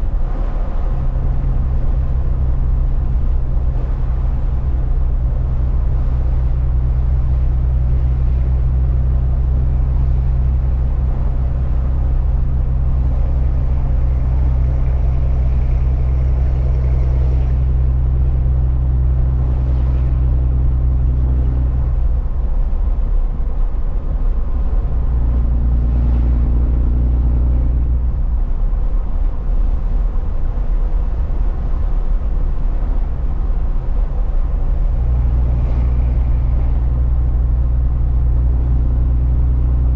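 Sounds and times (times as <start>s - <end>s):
road noise: 0.0s - 39.9s
truck engine droning: 0.0s - 39.9s.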